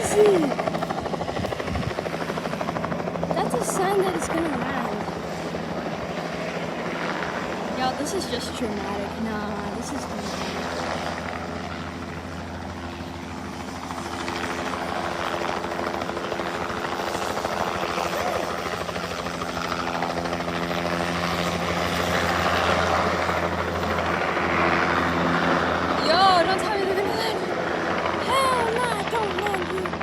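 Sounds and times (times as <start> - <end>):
helicopter rotor and engine: 0.0 - 30.0.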